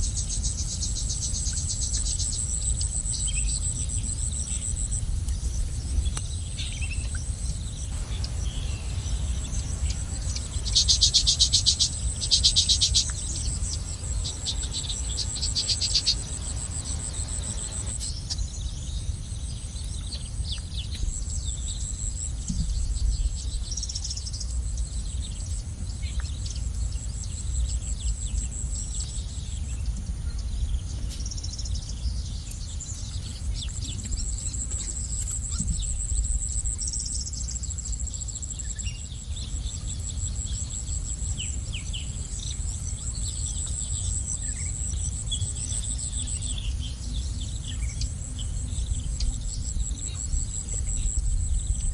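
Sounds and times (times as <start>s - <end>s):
low rumble: 0.0s - 27.4s
bird chirps: 0.0s - 51.9s
high insect drone: 0.0s - 51.9s.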